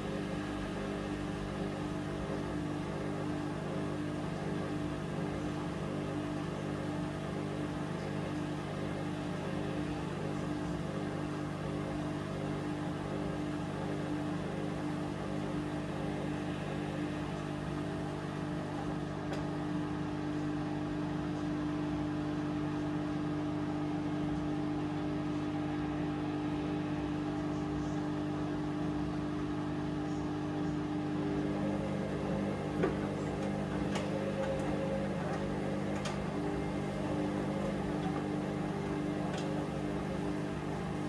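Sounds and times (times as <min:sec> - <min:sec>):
washing machine motor hum: 0:00.0 - 0:41.0
washing machine click: 0:31.4 - 0:41.0.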